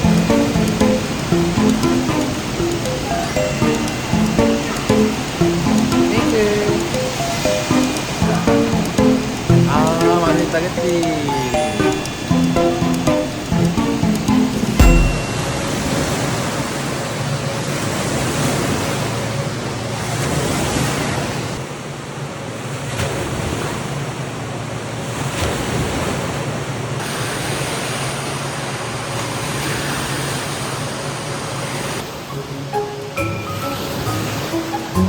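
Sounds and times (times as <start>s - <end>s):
wave pool water splashing: 0.0s - 16.5s.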